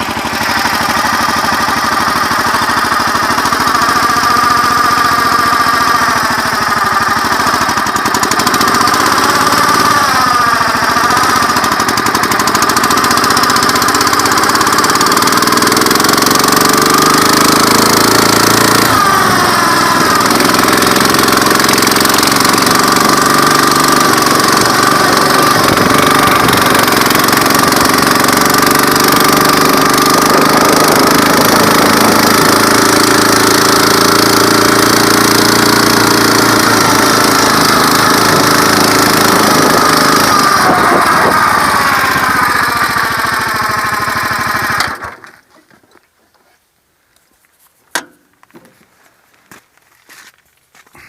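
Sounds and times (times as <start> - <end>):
small engine running: 0.0 - 45.6
sharp click: 47.9 - 48.3.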